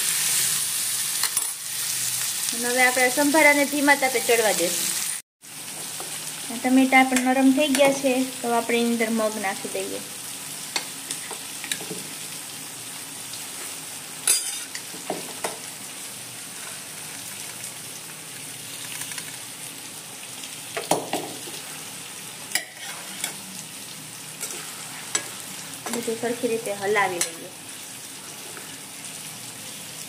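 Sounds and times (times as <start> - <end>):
curry sizzling in a pan: 0.0 - 30.0.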